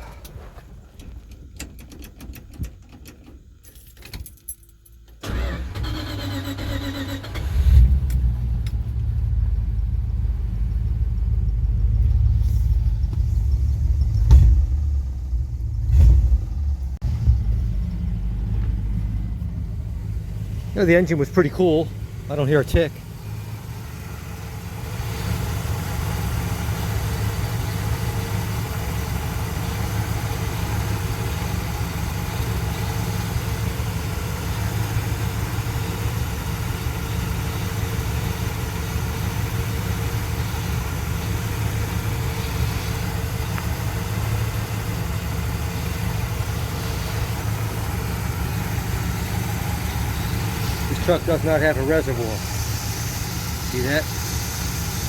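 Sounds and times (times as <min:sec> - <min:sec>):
pickup engine idling: 0:05.2 - 0:55.0.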